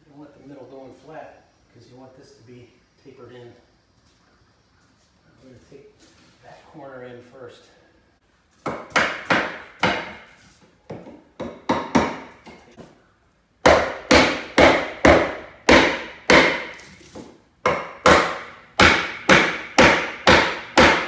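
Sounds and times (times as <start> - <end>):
hammer knocking on wood trim: 8.7 - 10.2, 10.9 - 12.6, 13.6 - 21.0.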